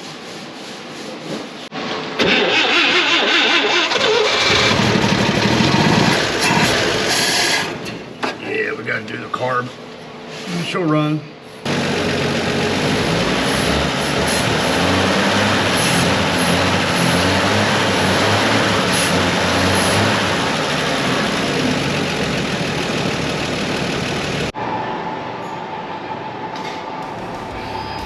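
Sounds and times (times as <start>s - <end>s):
truck engine running: 4.3s - 7.1s, 11.7s - 24.6s.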